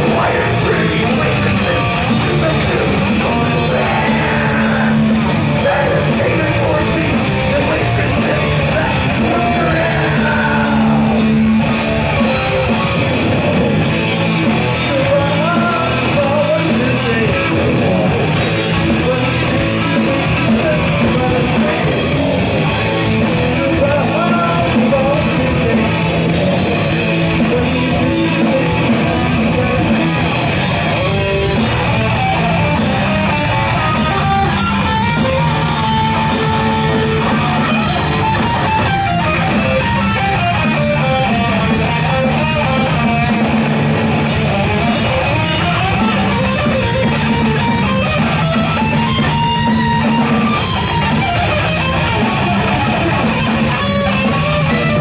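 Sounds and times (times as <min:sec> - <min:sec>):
guitar riffing: 0:00.0 - 0:55.0
live heavy metal band: 0:00.0 - 0:55.0.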